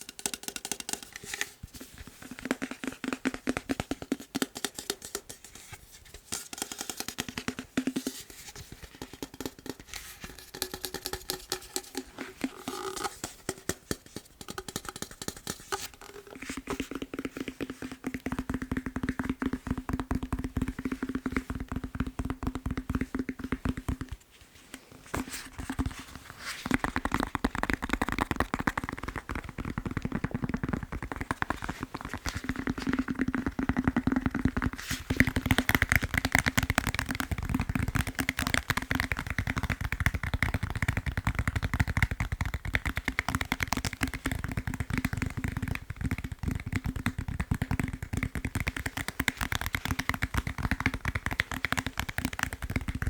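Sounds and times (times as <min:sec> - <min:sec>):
tapping on foam roller: 0:08.8 - 0:24.2, 0:26.6 - 0:53.0.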